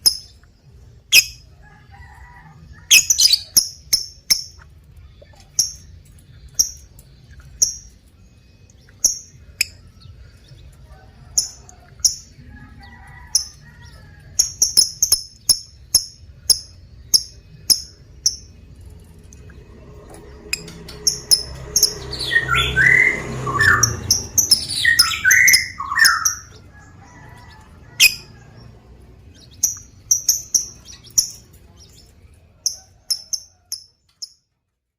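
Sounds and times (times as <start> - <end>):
bird chirping: 0.0 - 1.5, 2.8 - 10.8, 11.4 - 34.4
squawky bird calls: 2.9 - 3.6.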